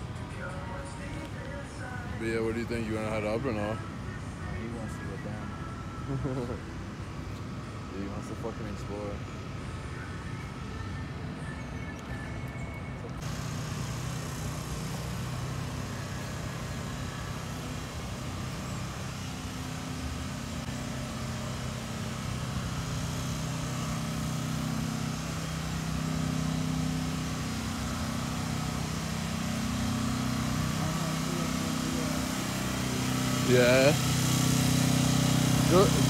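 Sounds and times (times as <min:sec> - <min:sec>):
street noise: 0:00.0 - 0:36.0
vehicle engine humming: 0:00.0 - 0:36.0.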